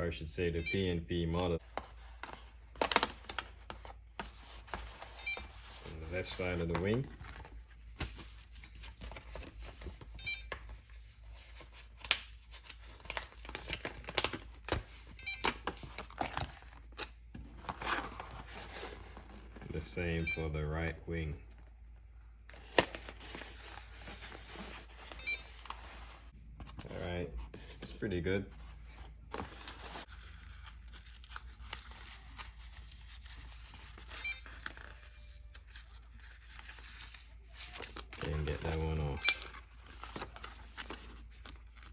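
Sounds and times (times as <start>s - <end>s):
stickers rustling and crinkling: 1.2s - 20.2s, 22.5s - 41.9s
stickers peeling and crinkling: 29.4s - 41.9s.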